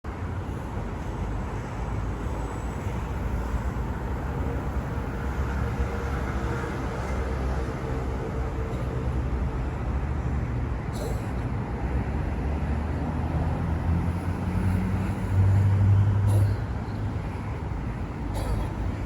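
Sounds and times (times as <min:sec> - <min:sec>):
traffic rumble: 0:00.1 - 0:19.0.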